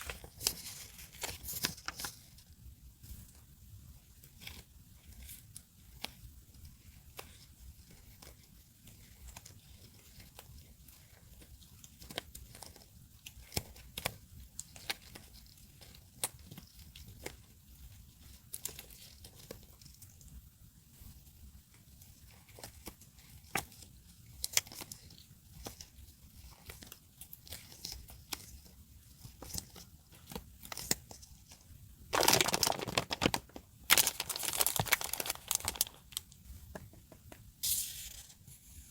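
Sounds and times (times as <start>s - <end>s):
paper crinkling and tapping: 0.0s - 2.4s, 4.2s - 20.4s, 21.0s - 38.3s.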